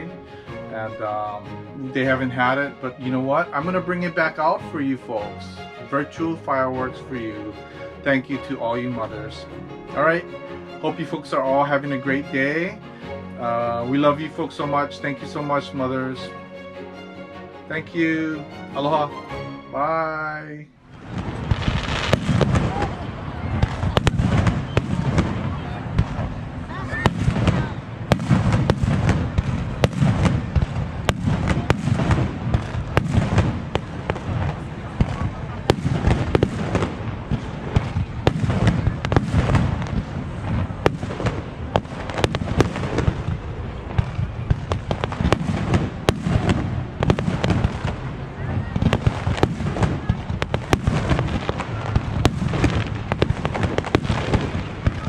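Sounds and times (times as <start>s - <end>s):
fireworks booming: 20.9s - 55.0s
fireworks cracks and pops: 21.0s - 23.0s, 48.8s - 55.0s.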